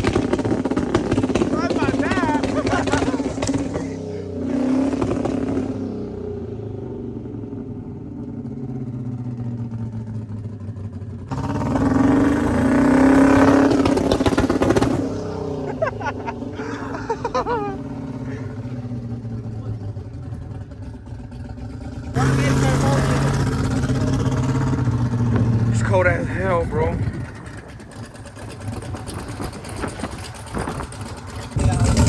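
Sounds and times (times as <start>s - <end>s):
car engine revving: 0.0s - 32.0s
faint voices: 1.4s - 4.3s.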